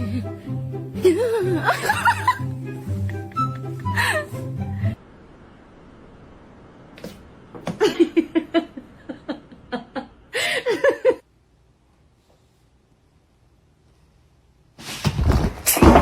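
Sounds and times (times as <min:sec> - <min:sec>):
person laughing: 0:01.0 - 0:04.7, 0:07.8 - 0:11.2.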